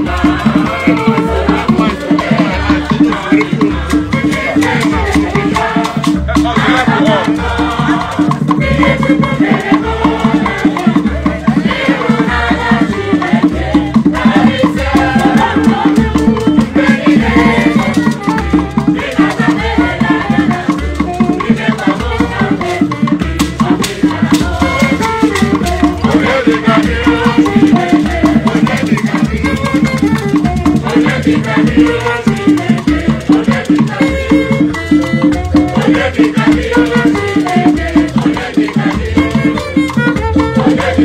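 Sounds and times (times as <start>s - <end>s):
bass beat: 0.0s - 33.4s
percussion: 0.0s - 41.0s
rattles or shakers: 0.0s - 41.0s.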